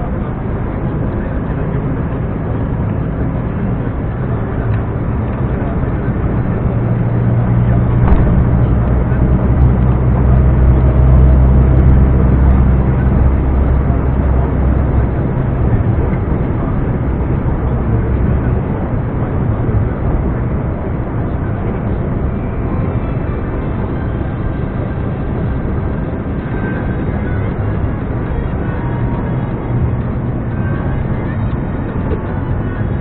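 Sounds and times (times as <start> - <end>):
truck diesel engine droning: 0.0 - 33.0
even rushing noise: 2.1 - 23.0.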